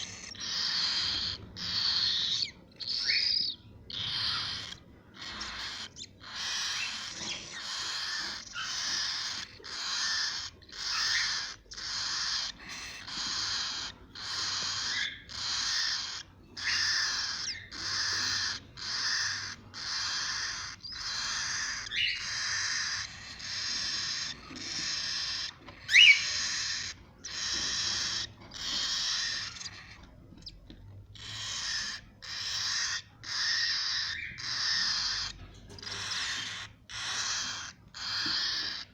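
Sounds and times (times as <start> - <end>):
chicks giving raspy calls: 0.0 - 38.9.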